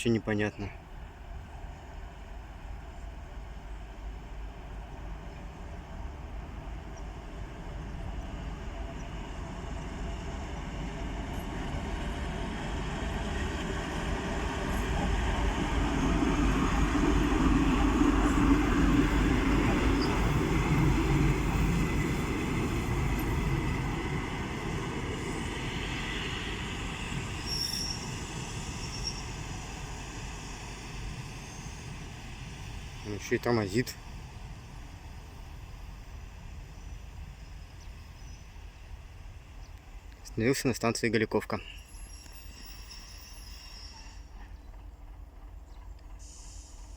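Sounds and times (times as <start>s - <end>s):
diesel railcar engine: 0.6s - 40.8s, 41.4s - 46.9s
high wheel squeals: 27.0s - 29.9s, 41.6s - 44.6s.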